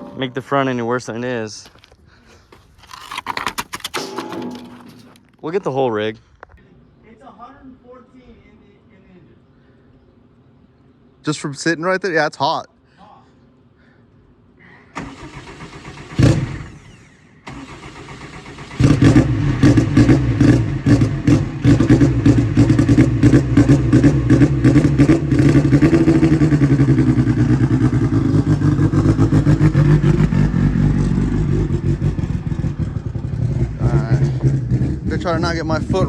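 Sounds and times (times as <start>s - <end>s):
loud clunk: 3.1s - 5.4s
car engine starting and revving: 15.0s - 36.0s.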